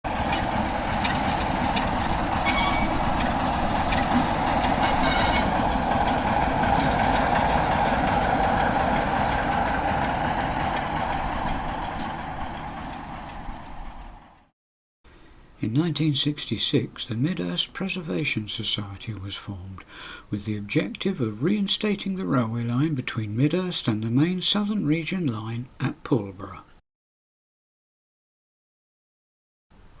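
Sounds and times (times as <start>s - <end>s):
train wheels rumbling on rails: 0.1s - 14.5s
high wheel squeals: 2.4s - 4.0s, 4.8s - 5.6s.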